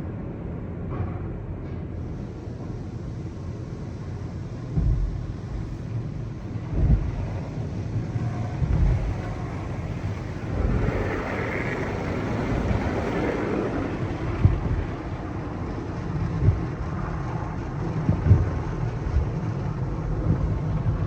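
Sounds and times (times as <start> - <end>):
car wash low rumble: 2.0 - 21.0
hiss: 2.2 - 15.4
heavy thumps: 4.7 - 7.6, 8.5 - 11.8.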